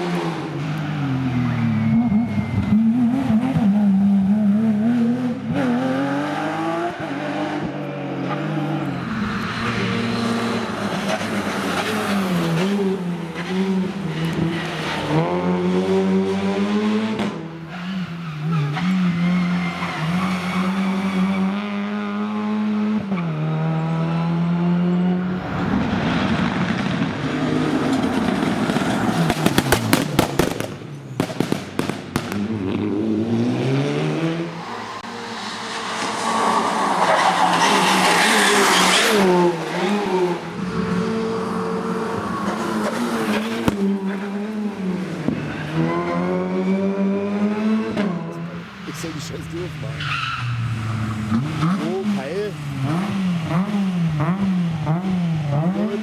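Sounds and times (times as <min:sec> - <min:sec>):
rally car engine at full throttle: 0:00.0 - 0:31.2, 0:32.1 - 0:56.0
exhaust pops and bangs: 0:25.6 - 0:32.9, 0:42.2 - 0:44.3.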